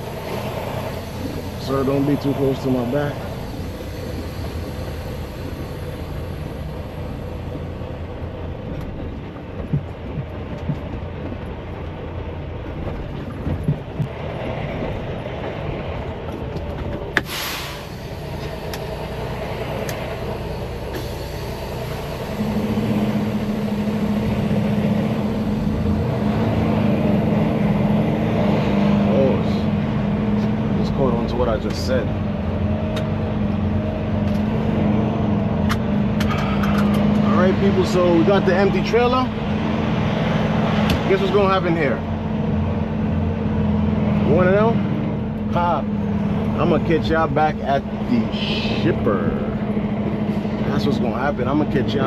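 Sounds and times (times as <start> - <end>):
air brake hiss: 0.0 - 7.4, 17.2 - 24.2
diesel truck engine running: 0.0 - 52.0.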